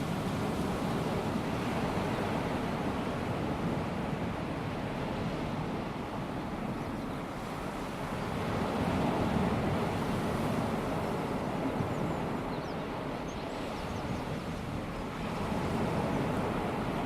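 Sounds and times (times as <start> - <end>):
small waves washing onto beach: 0.0 - 17.0.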